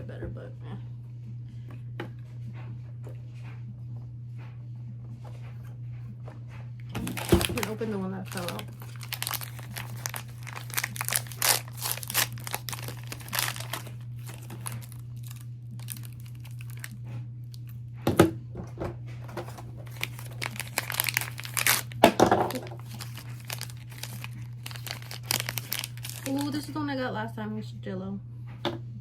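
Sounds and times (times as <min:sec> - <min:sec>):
plastic wrapping crinkling and tearing: 0:07.0 - 0:17.7, 0:19.4 - 0:26.8.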